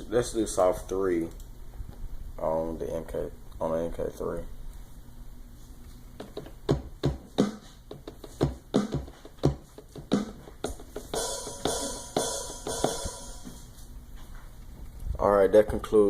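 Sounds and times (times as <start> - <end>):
drum sample hits: 6.2 - 13.8
cymbal-like hits: 11.1 - 13.7.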